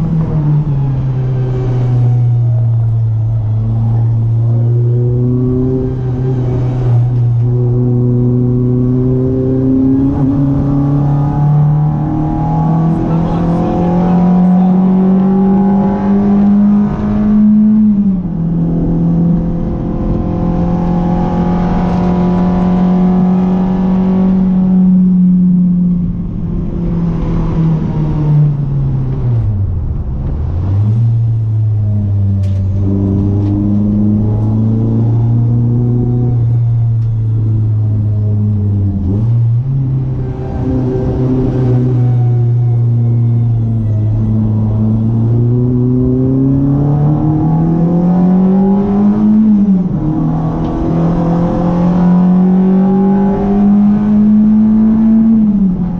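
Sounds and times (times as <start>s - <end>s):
car engine revving: 0.0s - 55.9s.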